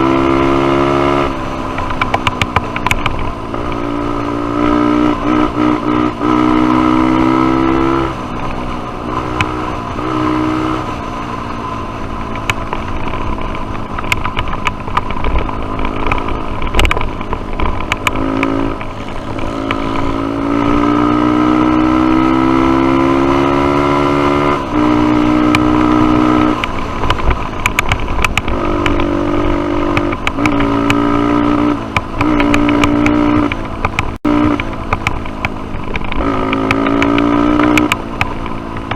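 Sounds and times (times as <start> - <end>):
sharp clicks and knocks: 1.2 - 6.4, 7.1 - 10.2, 11.6 - 21.1, 22.7 - 38.9
dirt bike engine revving: 3.3 - 11.2, 17.9 - 35.0, 36.0 - 38.6.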